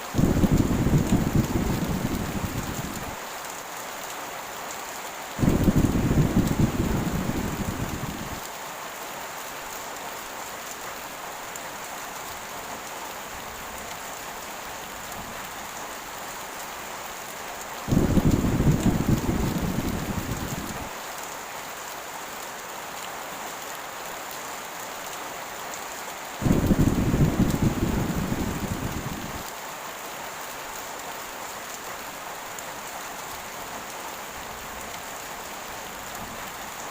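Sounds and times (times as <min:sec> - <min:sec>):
heavy rain: 0:00.0 - 0:36.9
thunder rolling: 0:00.2 - 0:03.1, 0:05.4 - 0:08.4, 0:17.9 - 0:20.9, 0:26.4 - 0:29.4.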